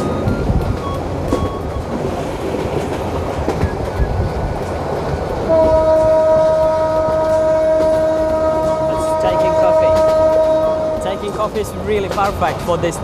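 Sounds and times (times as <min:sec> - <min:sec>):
train rumble and rattle: 0:00.0 - 0:13.0
train horn: 0:05.4 - 0:11.4.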